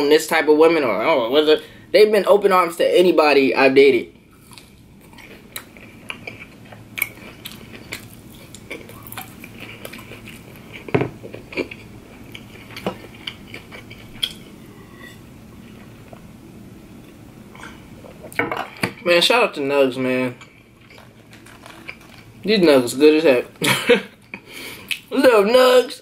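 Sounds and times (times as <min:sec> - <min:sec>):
person chewing crunchy food: 0:04.3 - 0:14.8, 0:20.5 - 0:22.5.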